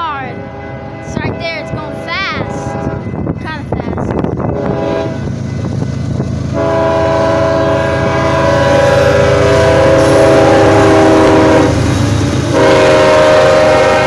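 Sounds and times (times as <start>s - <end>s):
passing train rumble: 0.0s - 14.0s
locomotive air horn blowing: 0.4s - 1.4s, 4.6s - 5.2s, 6.5s - 11.9s, 12.5s - 14.0s.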